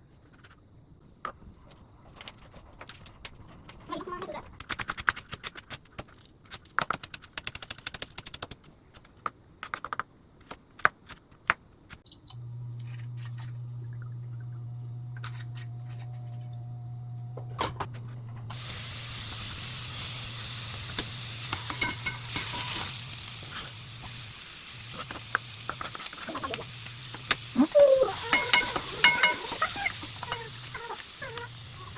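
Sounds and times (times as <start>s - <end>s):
low steady hum: 12.1s - 19.4s
food sizzling in a frying pan: 18.5s - 31.9s
kitchen clinks and taps: 21.5s - 22.8s, 28.3s - 29.6s.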